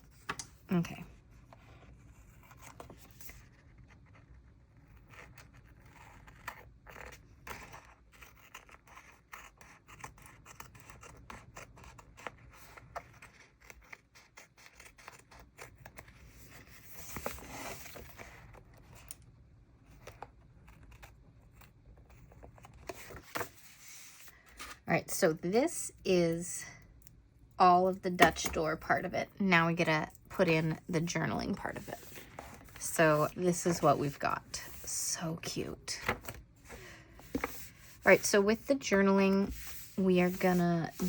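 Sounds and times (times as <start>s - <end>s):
paper scraping: 30.6s - 35.3s, 36.0s - 41.0s.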